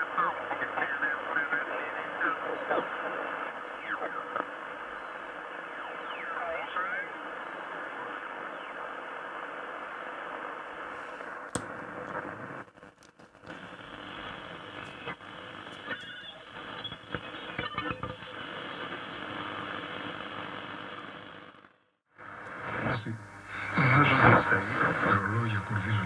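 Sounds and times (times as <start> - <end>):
radio static hiss: 0.0 - 26.0
radio clicks: 11.2 - 19.8, 22.4 - 26.0
radio whistles: 22.5 - 26.0.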